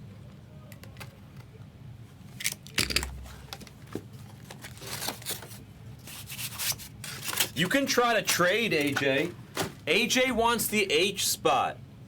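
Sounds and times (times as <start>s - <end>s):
card wrappers rustling: 3.1s - 10.7s.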